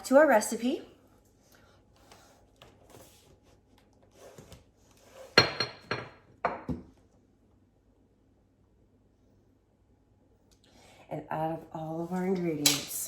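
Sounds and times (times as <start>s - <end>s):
kitchenware knocks: 5.4s - 6.9s.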